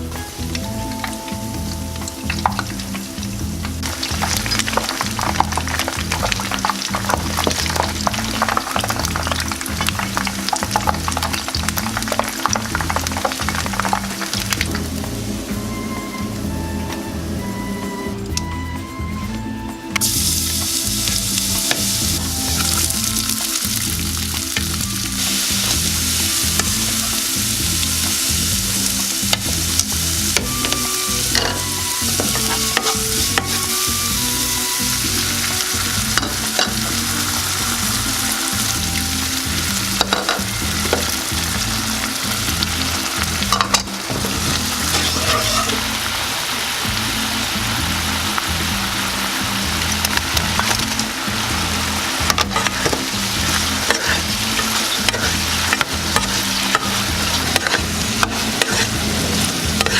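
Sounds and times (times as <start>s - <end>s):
food sizzling in hot oil: 0.0s - 15.4s, 20.0s - 59.9s
spatula scraping a wok: 39.4s - 46.1s, 51.6s - 59.9s.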